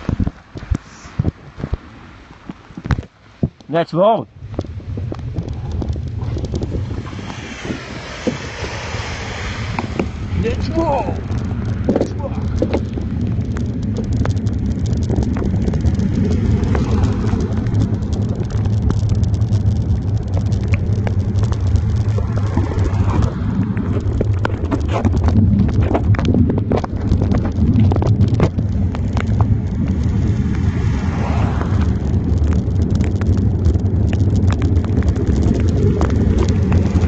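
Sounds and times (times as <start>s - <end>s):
wind rumbling on microphone: 0.0s - 37.0s
clicks and knocks: 11.2s - 30.1s.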